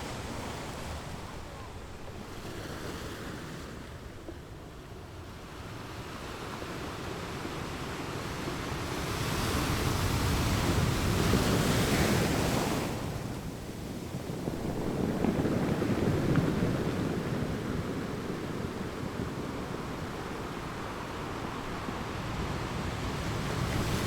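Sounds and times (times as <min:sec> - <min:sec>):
sea waves surging: 0:00.0 - 0:24.0
wind on microphone: 0:00.0 - 0:24.0.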